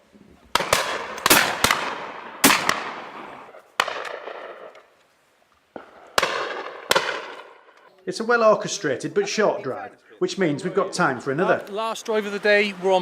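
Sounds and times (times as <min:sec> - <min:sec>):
shotgun shots with echo: 0:00.5 - 0:04.7, 0:05.8 - 0:07.7.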